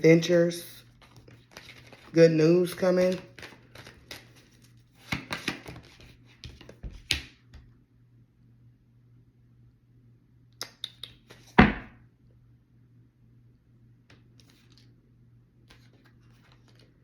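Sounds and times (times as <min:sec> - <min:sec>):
cards rustling and clicking: 0:00.9 - 0:07.3, 0:14.1 - 0:14.9, 0:15.7 - 0:17.0.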